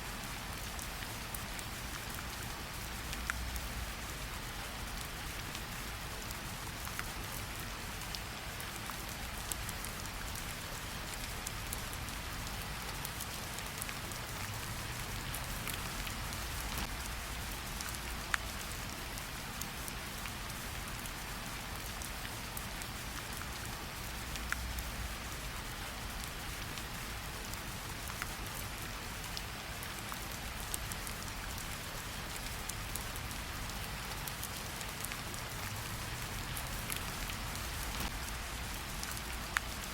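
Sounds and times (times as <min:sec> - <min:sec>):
steady rain falling: 0:00.0 - 0:39.9
raindrops ticking: 0:11.2 - 0:18.8, 0:24.0 - 0:25.2, 0:30.2 - 0:39.9.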